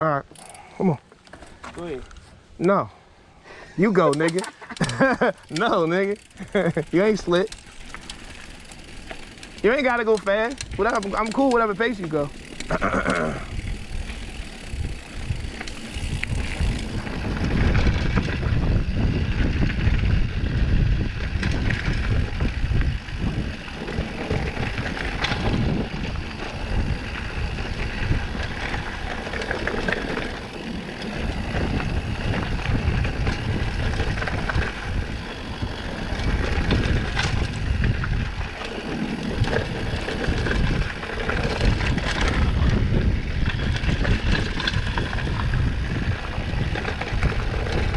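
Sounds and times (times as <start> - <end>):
bike clattering over bumps: 4.0 - 20.2, 21.0 - 47.9
wind buffeting microphone: 6.1 - 47.9.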